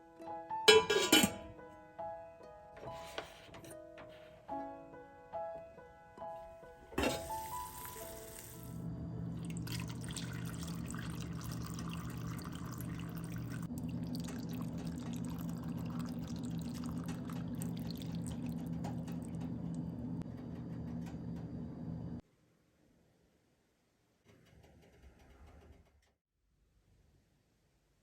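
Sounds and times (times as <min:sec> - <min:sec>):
piano music: 0:00.0 - 0:13.7
tap water running into sink: 0:07.0 - 0:08.8, 0:09.4 - 0:19.8
low steady hum: 0:08.3 - 0:22.2.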